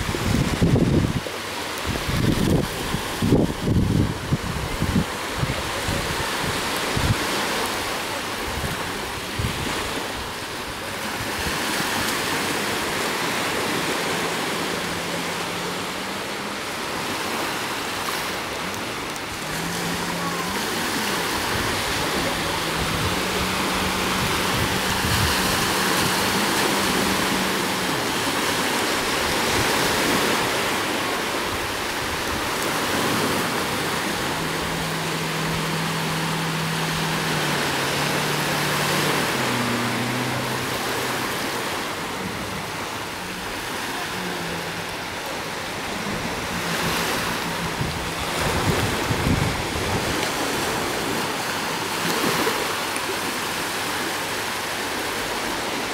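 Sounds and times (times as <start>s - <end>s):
jet ski engine drone: 0.0s - 55.9s
water spray rushing: 0.0s - 55.9s
wind: 0.0s - 55.9s.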